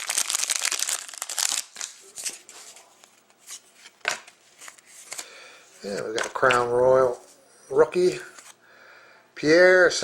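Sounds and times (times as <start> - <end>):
trading cards rustling: 0.0 - 7.4
cards sliding and flicking: 3.4 - 6.6.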